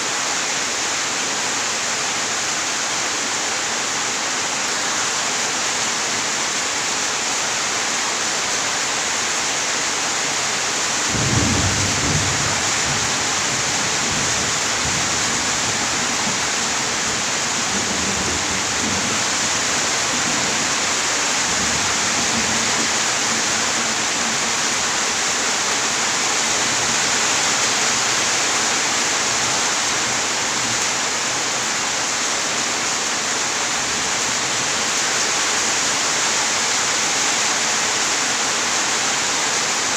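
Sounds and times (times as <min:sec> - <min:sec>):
heavy rain falling: 0:00.0 - 0:39.9
thunder rumbling: 0:11.1 - 0:16.5.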